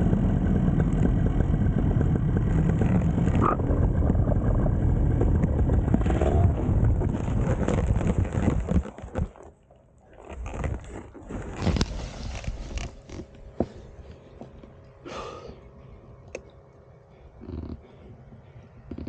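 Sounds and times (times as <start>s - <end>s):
paramotor engine: 0.0s - 9.0s
wind noise: 0.0s - 9.4s
gear scraping and rustling: 0.6s - 14.8s.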